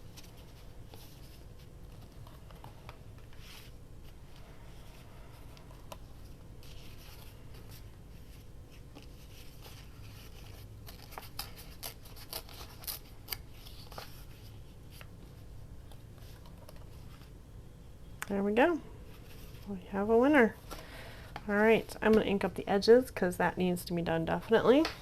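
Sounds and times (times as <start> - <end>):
paper rustling: 0.0 - 17.3.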